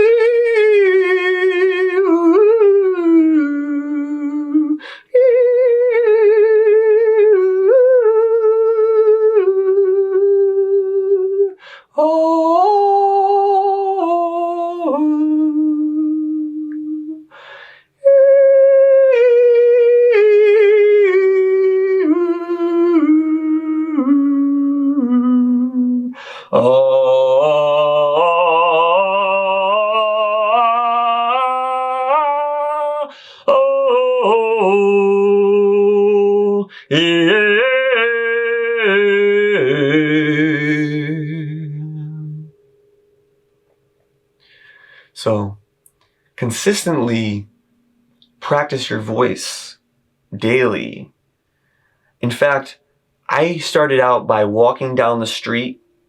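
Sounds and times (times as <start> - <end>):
person humming with vibrating lips: 0.0 - 17.4, 18.0 - 42.6.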